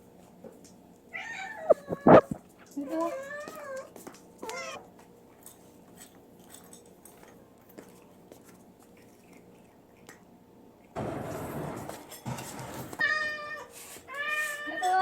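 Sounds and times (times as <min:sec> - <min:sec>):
cat meowing: 0:01.2 - 0:04.9, 0:13.0 - 0:15.0
cat chewing food: 0:02.1 - 0:11.0.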